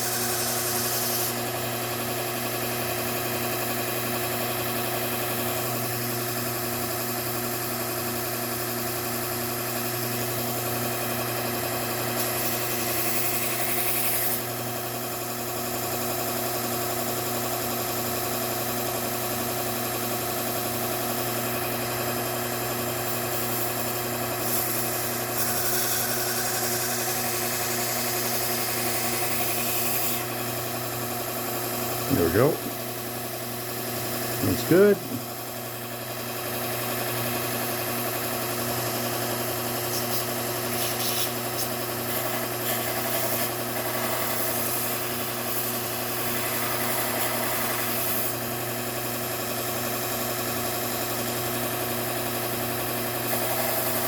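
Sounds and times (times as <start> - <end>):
belt sander motor hum: 23.0 - 30.9.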